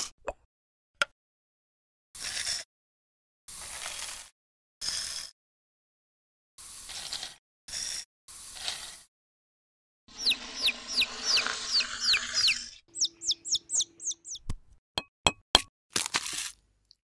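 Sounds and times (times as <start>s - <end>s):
chick-like peeping: 10.1s - 14.5s.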